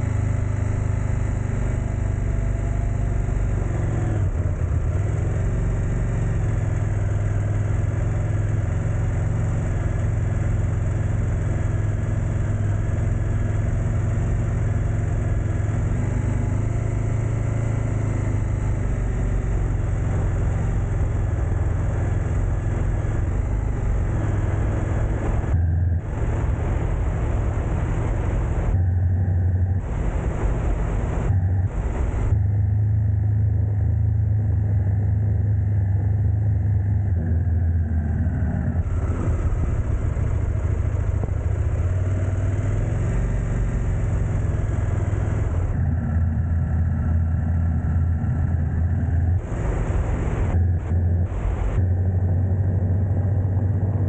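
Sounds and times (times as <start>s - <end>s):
vehicle engine and road hum: 0.0s - 54.0s.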